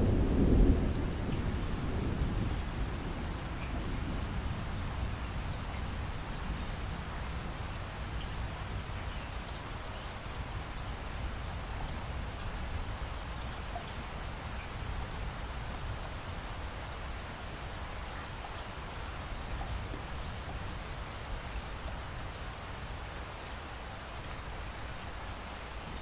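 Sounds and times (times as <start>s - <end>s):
steady rainfall hiss: 0.0s - 26.0s
faint raindrop ticks: 0.6s - 1.7s, 3.4s - 3.9s, 5.6s - 5.9s, 8.1s - 11.0s, 13.3s - 14.8s, 16.7s - 18.7s, 19.4s - 20.8s.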